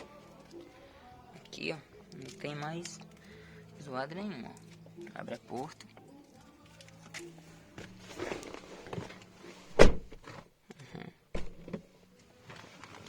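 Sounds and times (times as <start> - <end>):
car door clicks: 9.7 - 10.2, 11.4 - 11.8
car door clunk: 9.7 - 10.2, 11.4 - 11.8
car door knock: 9.8 - 10.2, 11.4 - 11.8.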